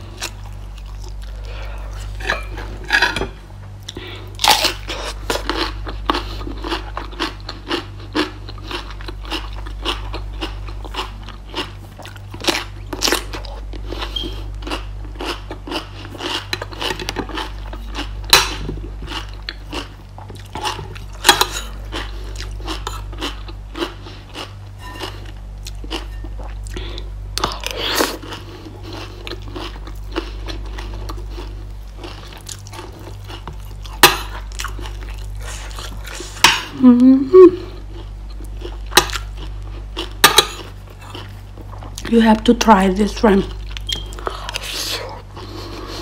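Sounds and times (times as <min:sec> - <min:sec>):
low steady hum: 0:00.0 - 0:46.0
person crunching lettuce: 0:03.8 - 0:42.1.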